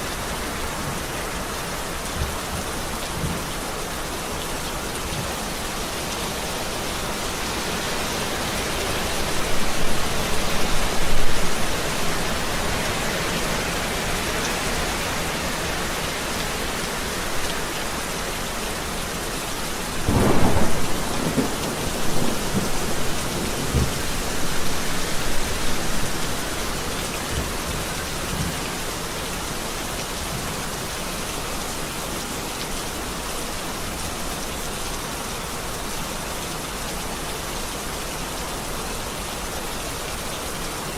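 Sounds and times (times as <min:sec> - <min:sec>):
steady rain falling: 0:00.0 - 0:40.9
thunder rumbling: 0:20.0 - 0:26.5.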